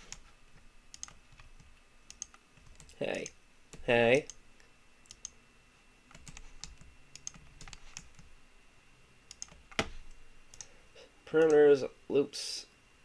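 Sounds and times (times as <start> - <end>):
computer keyboard clicks: 0.9 - 4.4, 6.1 - 8.3, 9.3 - 9.9, 10.5 - 10.7.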